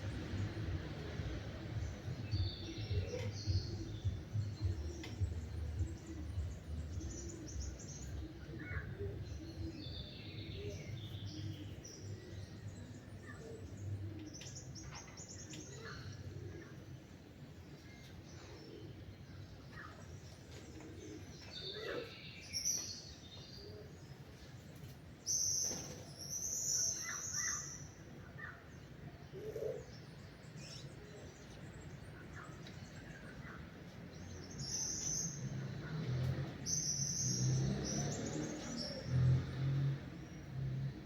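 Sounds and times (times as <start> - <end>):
low hum: 0.0 - 9.7
wild birds chirping: 0.0 - 41.0.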